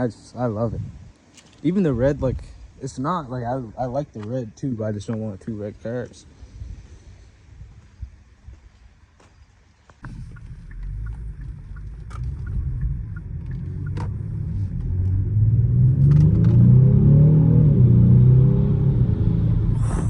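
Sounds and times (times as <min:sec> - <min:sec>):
car engine accelerating hard: 0:10.0 - 0:20.0.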